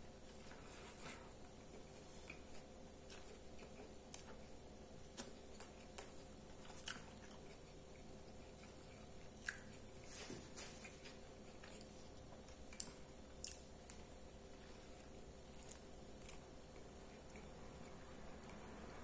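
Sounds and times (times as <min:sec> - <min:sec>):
faint steady hum: 0:00.0 - 0:19.0
faint chewing with mouth closed: 0:00.2 - 0:19.0
small mouth clicks and smacks: 0:05.2 - 0:09.8.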